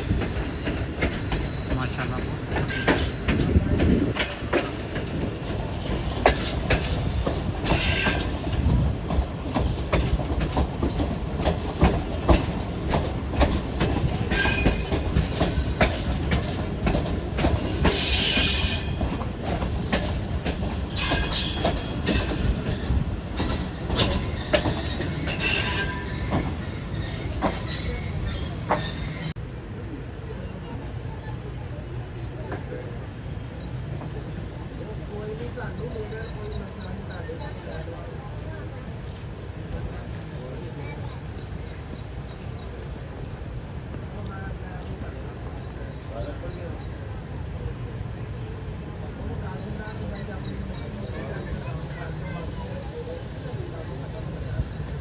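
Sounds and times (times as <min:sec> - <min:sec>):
wheel squeals: 0:00.0 - 0:03.3, 0:13.4 - 0:16.1, 0:17.5 - 0:29.4
wheels clacking over rail joints: 0:00.0 - 0:29.4
train rumble: 0:00.0 - 0:55.0.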